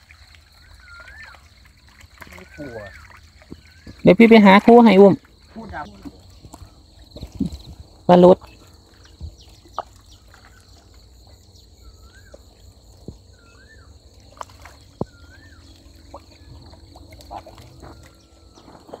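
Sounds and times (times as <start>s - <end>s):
bird whistling: 15.1s - 15.7s.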